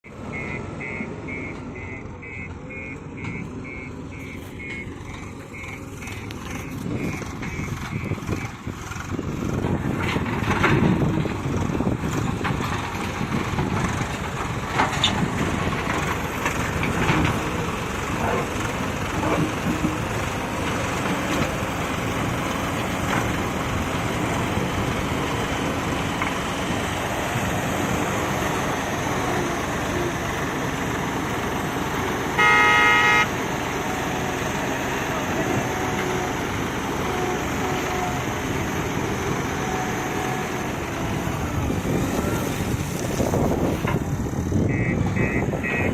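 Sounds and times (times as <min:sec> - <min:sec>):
heavy diesel machinery running: 0:00.0 - 0:45.9
horn blast: 0:32.4 - 0:33.3.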